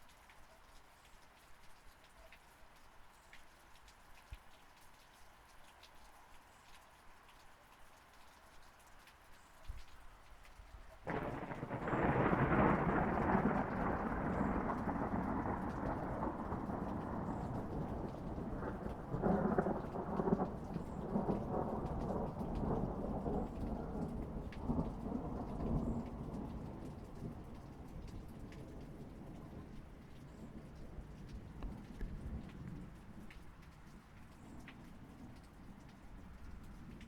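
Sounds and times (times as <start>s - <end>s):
rain falling: 0.0s - 37.0s
thunder rumbling: 11.1s - 33.3s.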